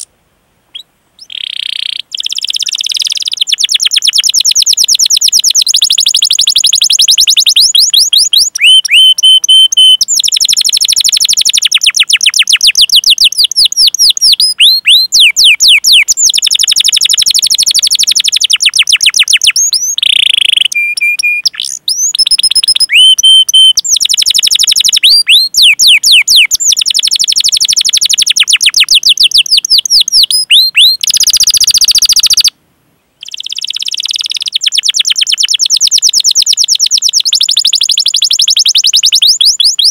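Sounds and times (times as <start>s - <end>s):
canary singing fast trills: 0.7s - 32.5s, 33.2s - 39.9s.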